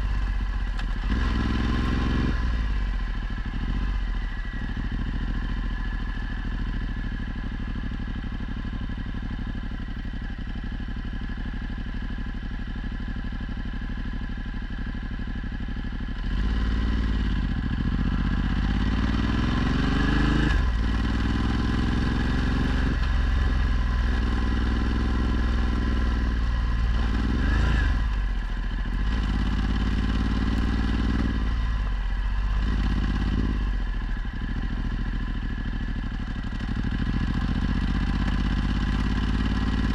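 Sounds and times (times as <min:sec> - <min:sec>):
motorcycle engine revving: 0:00.0 - 0:08.0, 0:16.1 - 0:39.9.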